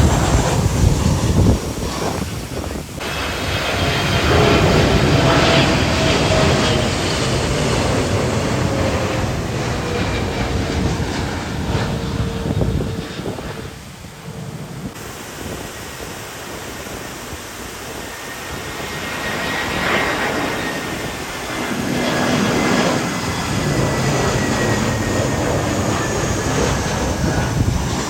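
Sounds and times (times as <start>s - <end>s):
jet engines rumbling: 0.0s - 28.0s
high whine falling in pitch: 11.2s - 28.0s.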